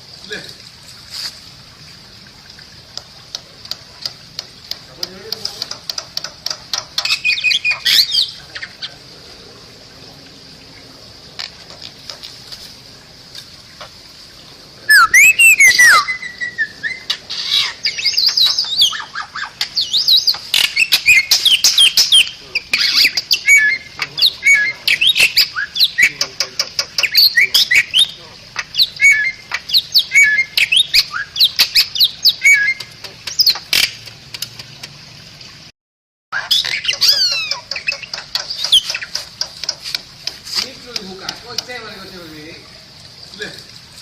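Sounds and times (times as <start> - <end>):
myna bird chattering and whistling: 5.4 - 9.0, 14.9 - 34.0, 36.4 - 39.9.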